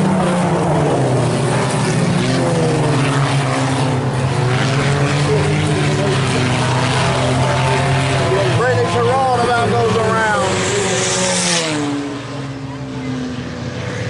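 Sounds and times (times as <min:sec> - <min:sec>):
race car engines racing: 0:00.0 - 0:14.0.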